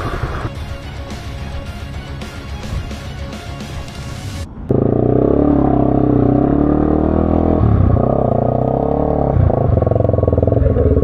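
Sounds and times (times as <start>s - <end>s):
motorcycle engine under load: 4.7s - 11.0s.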